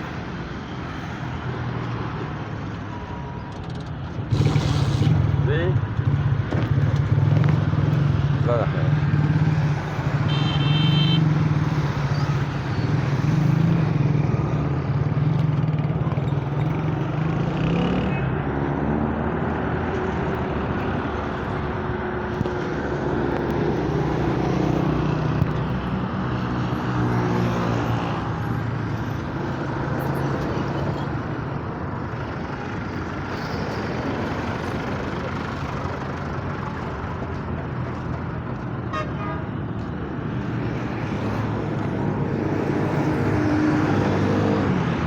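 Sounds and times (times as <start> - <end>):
large truck engine running: 28.8 - 38.8.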